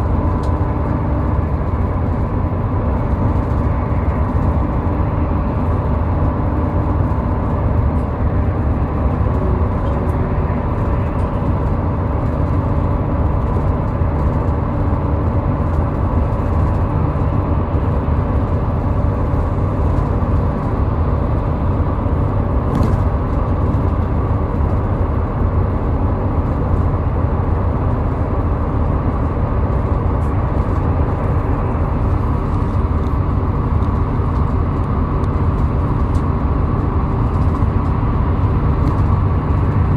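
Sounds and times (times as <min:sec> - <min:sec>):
car driving at highway speed: 0:00.0 - 0:39.9.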